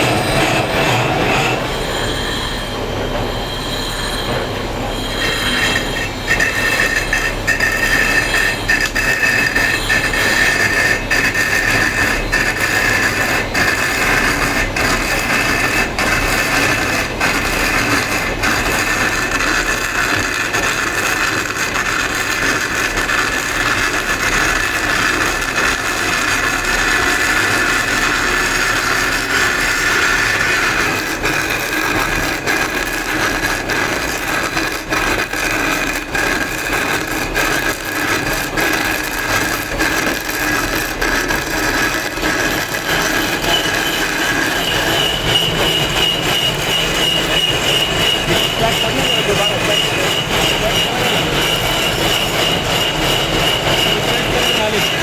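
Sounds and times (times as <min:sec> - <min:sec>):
power tool whining on stone: 0:04.9 - 0:55.0.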